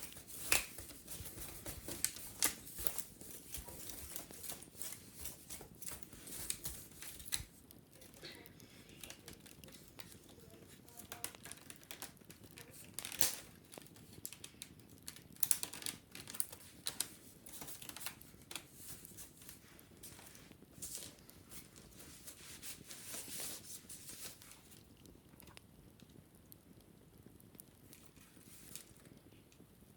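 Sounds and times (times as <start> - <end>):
wicker basket rustling: 0.0 - 13.5, 15.4 - 24.8.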